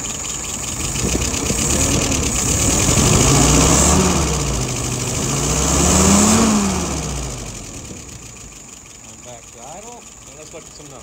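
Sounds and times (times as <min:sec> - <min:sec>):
engine revving: 0:00.8 - 0:08.4.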